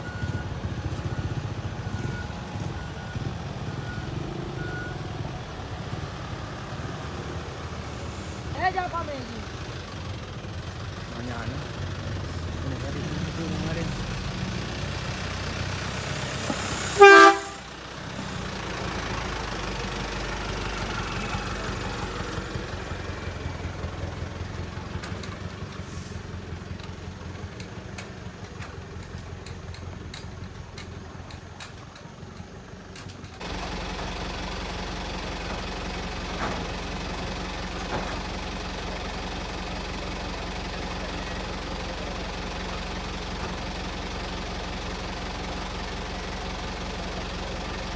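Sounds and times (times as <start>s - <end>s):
deep idling hum: 0.0s - 24.9s
truck engine rumbling: 0.0s - 47.9s
loud horn blast: 16.8s - 17.8s.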